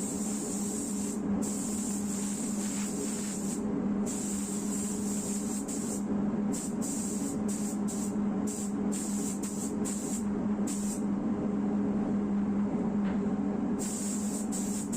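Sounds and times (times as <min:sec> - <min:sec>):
paint spray gun hissing: 0:00.0 - 0:06.0, 0:06.6 - 0:11.0, 0:13.8 - 0:14.9
steady low hum: 0:00.0 - 0:14.9.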